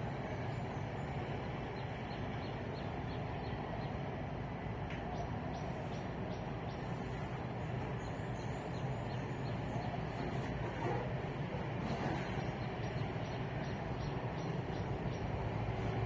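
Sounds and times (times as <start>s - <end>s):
small birds chirping: 0.0s - 4.2s, 5.0s - 16.0s
distant road traffic rumble: 0.0s - 16.0s.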